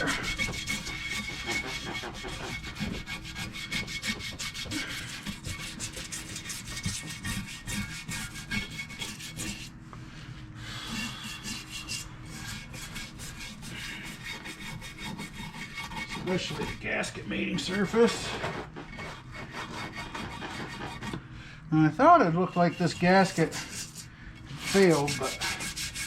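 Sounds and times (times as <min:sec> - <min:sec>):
brush scrubbing engine parts: 0:00.0 - 0:09.8, 0:10.8 - 0:21.2, 0:21.9 - 0:26.0.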